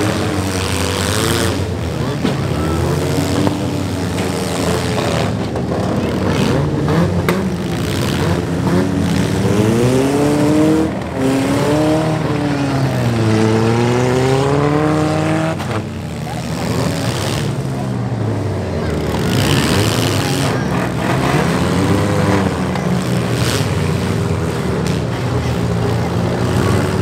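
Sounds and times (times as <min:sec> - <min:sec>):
car engines revving: 0:00.0 - 0:27.0.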